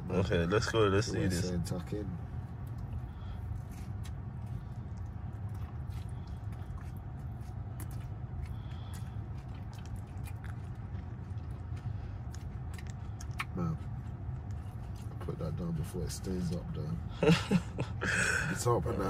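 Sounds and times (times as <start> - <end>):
steady low hum: 0.0 - 19.0
person chewing: 2.4 - 15.3
wet mouth clicks and squelches: 2.6 - 15.2.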